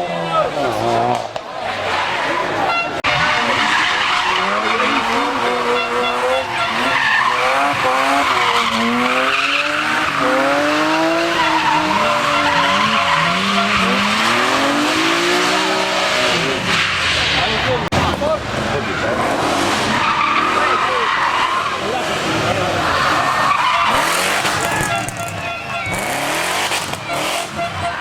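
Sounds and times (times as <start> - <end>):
car engine revving: 0.0 - 28.0
tyre squeal: 1.9 - 14.8, 22.8 - 28.0.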